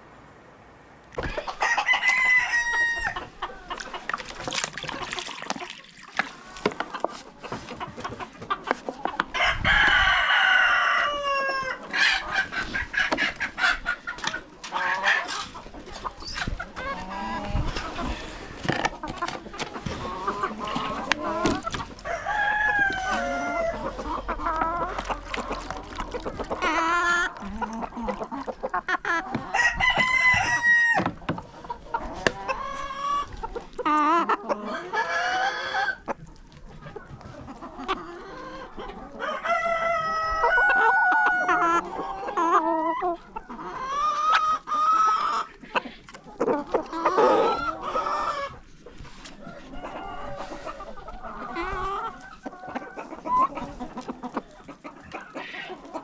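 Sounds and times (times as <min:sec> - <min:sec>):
chickens clucking: 0:01.0 - 0:56.0
rooster crowing: 0:01.5 - 0:03.2, 0:22.0 - 0:23.8, 0:29.5 - 0:31.1.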